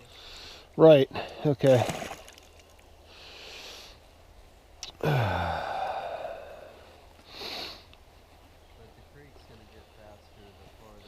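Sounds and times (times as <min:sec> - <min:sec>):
person sighing: 0:04.8 - 0:07.8
person exhaling: 0:05.0 - 0:07.9.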